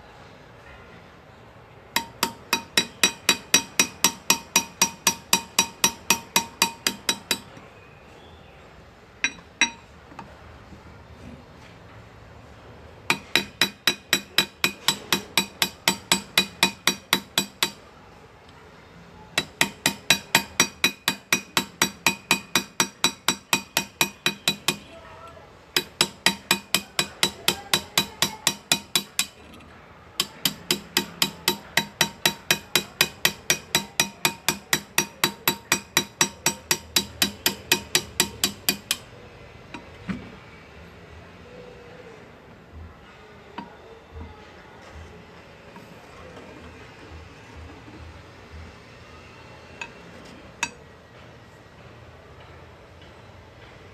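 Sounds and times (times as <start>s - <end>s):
hammer tapping graver on metal: 2.0s - 7.6s, 9.2s - 9.9s, 13.1s - 17.8s, 19.4s - 25.0s, 25.8s - 39.1s, 50.6s - 50.8s.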